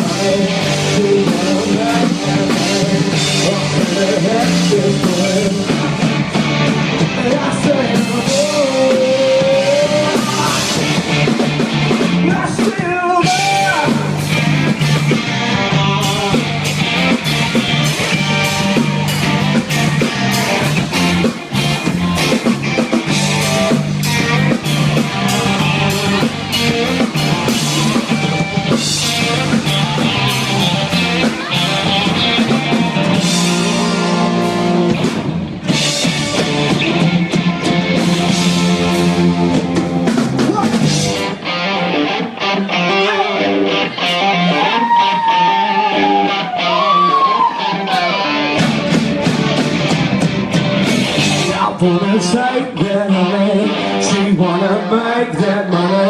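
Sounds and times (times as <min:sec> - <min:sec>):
low bass line: 0:00.0 - 0:12.4, 0:13.2 - 0:41.3
rock band playing live: 0:00.0 - 0:56.0.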